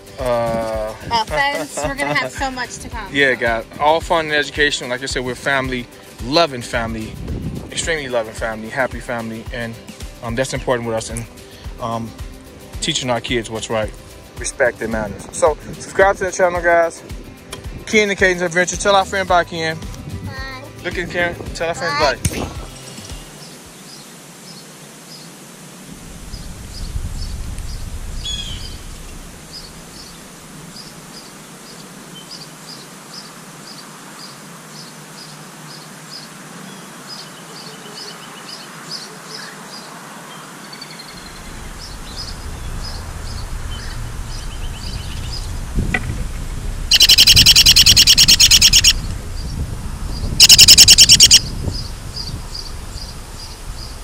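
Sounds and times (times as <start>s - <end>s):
birds chirping: 0.0s - 6.8s, 20.4s - 54.0s
harsh bird trills: 26.3s - 31.3s, 40.7s - 45.6s, 46.9s - 49.1s, 50.2s - 53.9s.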